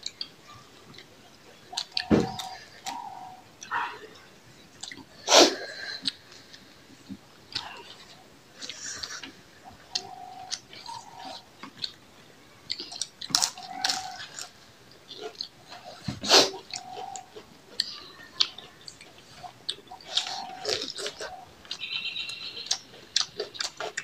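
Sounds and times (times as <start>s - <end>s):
chewing and lip smacks: 1.7s - 3.0s, 4.8s - 5.2s, 16.6s - 24.0s.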